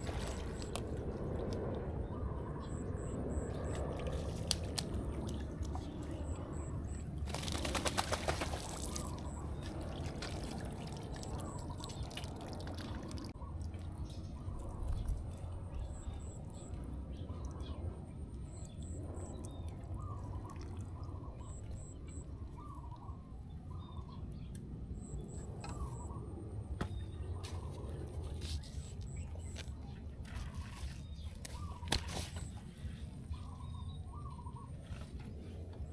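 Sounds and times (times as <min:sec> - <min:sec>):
steady low rumble: 0:00.0 - 0:07.4, 0:08.6 - 0:35.9
water splashing and dripping: 0:03.9 - 0:06.0, 0:07.3 - 0:13.9.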